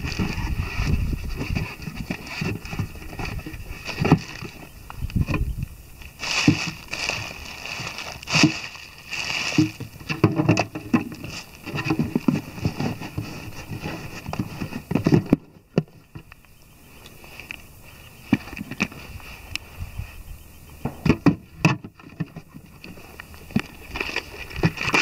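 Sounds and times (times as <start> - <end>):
bags rustling: 6.1 - 10.2.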